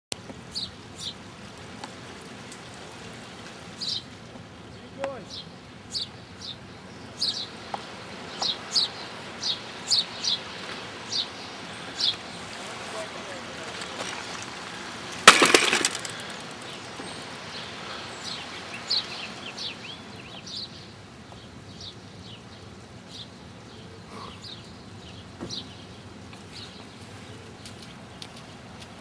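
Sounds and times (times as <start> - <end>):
loud crackling clatter: 13.6 - 17.0.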